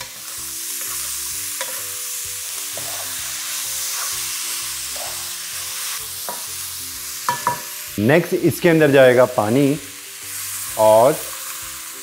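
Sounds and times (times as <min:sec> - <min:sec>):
food sizzling in hot oil: 0:00.0 - 0:12.0
wooden spatula scraping a pan: 0:02.8 - 0:03.2.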